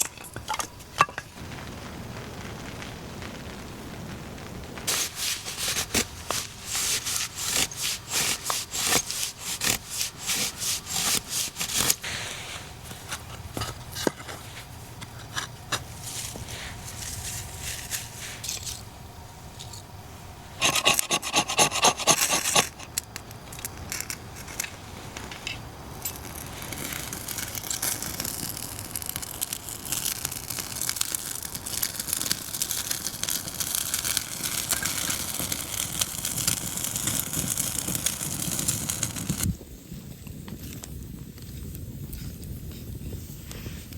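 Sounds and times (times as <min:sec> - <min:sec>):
steady hiss: 0:00.0 - 0:43.9
rhythmic scraping strokes: 0:04.9 - 0:18.8.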